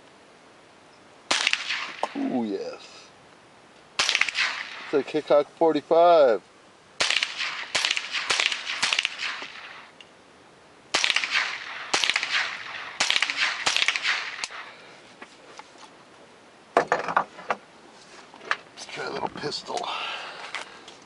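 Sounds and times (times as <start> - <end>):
gunshots: 1.3 - 2.3, 4.0 - 5.1, 7.0 - 9.9, 10.9 - 14.8.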